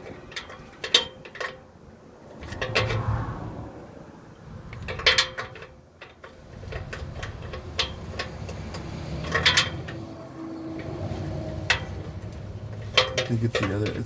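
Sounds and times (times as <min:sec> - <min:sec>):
hand tools clinking on metal: 0:04.9 - 0:14.0.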